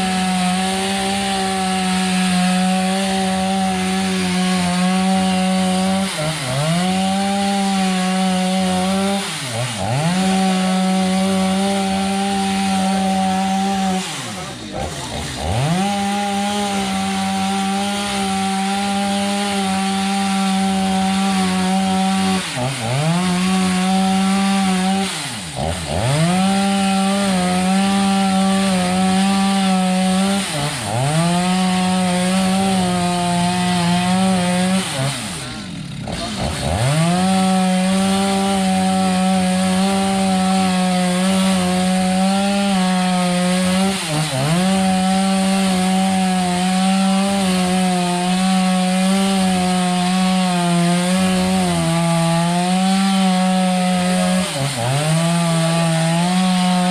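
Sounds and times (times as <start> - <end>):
chainsaw cutting wood: 0.0 - 56.9.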